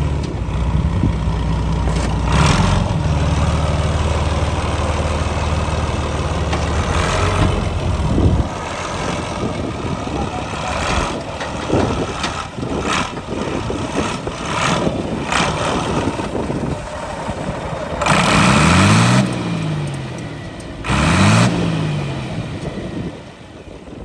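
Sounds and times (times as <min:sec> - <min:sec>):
car engine revving: 0:00.0 - 0:23.2
car engine running: 0:00.0 - 0:24.0.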